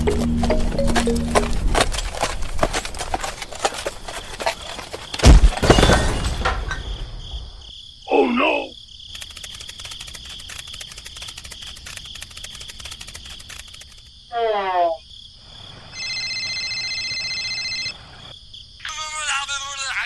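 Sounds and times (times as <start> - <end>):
crickets chirring: 0.0 - 19.9
loud thump: 5.2 - 7.6.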